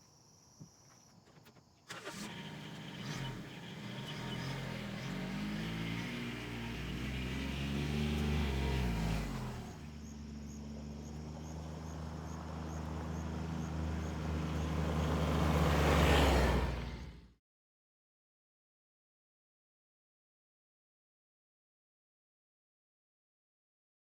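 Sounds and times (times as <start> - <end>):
vehicle engine running: 1.9 - 17.4.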